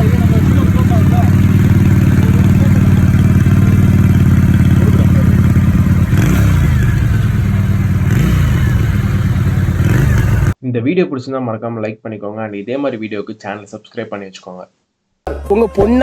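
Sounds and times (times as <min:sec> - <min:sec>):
engine throttle blips: 0:00.0 - 0:10.6
motorcycle engine idling: 0:00.0 - 0:10.6.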